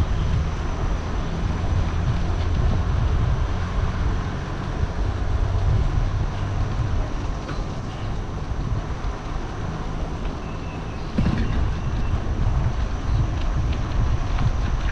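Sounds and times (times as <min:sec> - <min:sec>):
bike riding rumble: 0:00.0 - 0:14.9.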